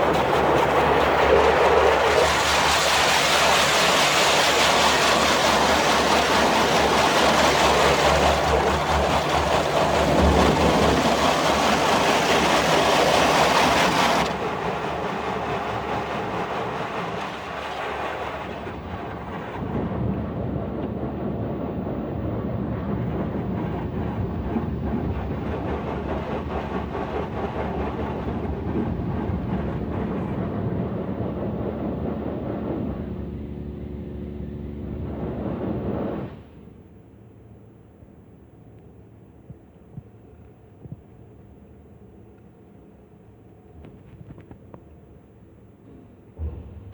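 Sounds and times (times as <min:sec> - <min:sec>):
car wash rumble: 0:00.0 - 0:37.0
motor hum: 0:31.1 - 0:36.6.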